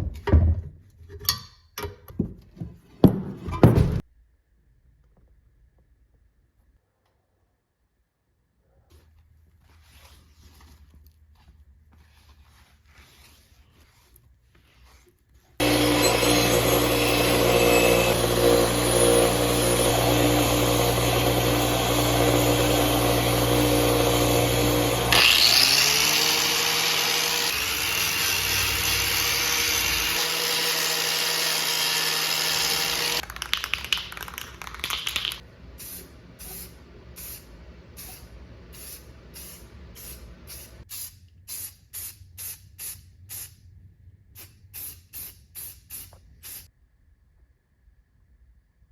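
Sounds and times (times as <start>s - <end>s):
power tool motor hum: 15.6s - 33.2s.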